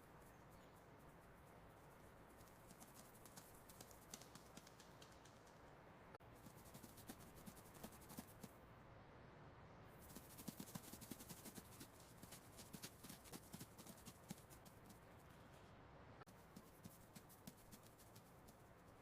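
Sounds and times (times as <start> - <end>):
mouse feet scurrying: 0.0 - 5.6.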